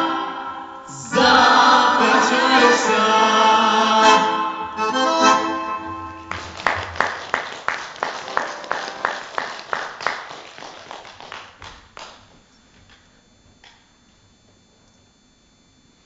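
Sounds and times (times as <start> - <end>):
small audience applauding: 6.2 - 13.0
loud claps: 6.3 - 13.0.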